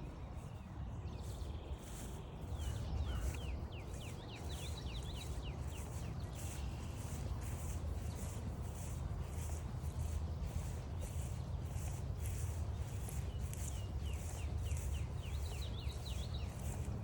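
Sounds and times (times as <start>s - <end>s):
footsteps on a trail: 1.2s - 17.0s.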